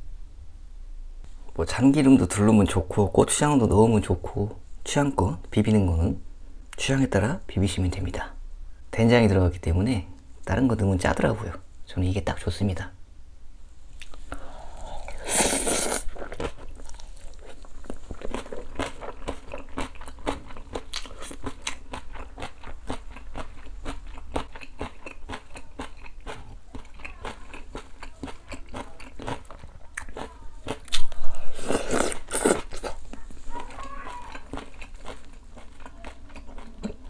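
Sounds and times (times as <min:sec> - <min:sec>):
crunchy chewing: 0:14.0 - 0:37.0
loud slurp: 0:14.3 - 0:16.2.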